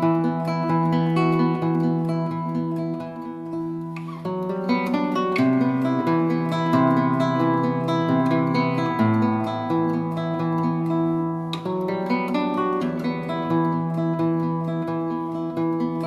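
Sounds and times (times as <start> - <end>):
acoustic guitar strummed and plucked: 0.0 - 16.0.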